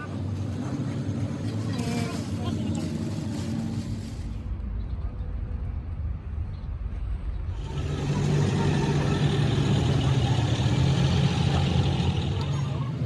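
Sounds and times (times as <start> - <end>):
heavy engine running: 7.5 - 13.0.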